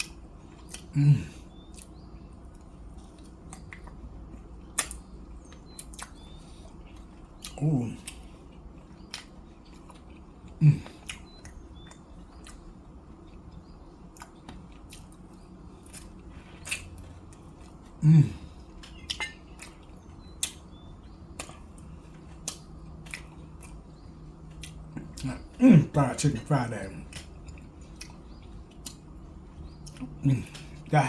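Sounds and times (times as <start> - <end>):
chewing and crunching: 0.0 - 31.0
appreciative mm sounds: 0.7 - 1.9, 7.4 - 8.4, 10.5 - 11.3, 17.6 - 19.3, 29.8 - 31.0.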